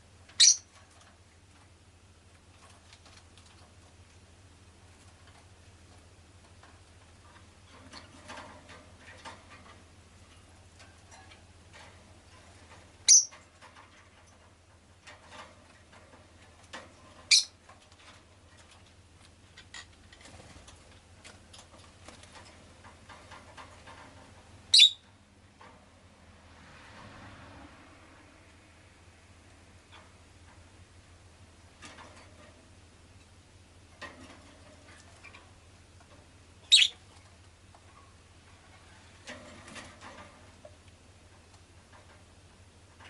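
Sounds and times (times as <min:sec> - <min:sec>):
faint clicks and rustles: 0:00.0 - 0:43.0
lovebird chirps: 0:00.4 - 0:00.7, 0:13.1 - 0:13.3, 0:17.3 - 0:17.5, 0:24.7 - 0:25.0, 0:36.7 - 0:37.0.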